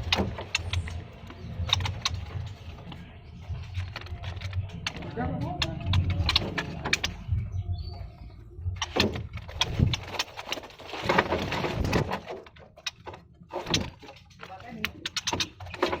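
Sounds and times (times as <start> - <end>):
birds chirping: 0.0 - 16.0
low rumble: 2.4 - 10.1
sharp clicks: 3.8 - 7.4.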